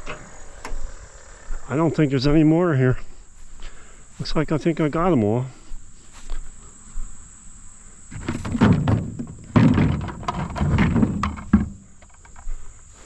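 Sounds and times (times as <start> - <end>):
crickets chirring: 0.0 - 13.0
irregular thuds and scuffs: 8.1 - 13.0.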